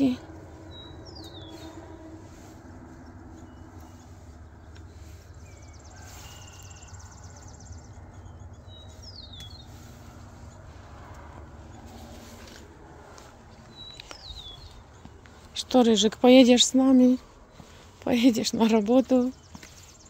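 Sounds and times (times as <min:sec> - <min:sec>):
birds singing: 0:00.0 - 0:20.0
steady low rumble: 0:00.0 - 0:20.0.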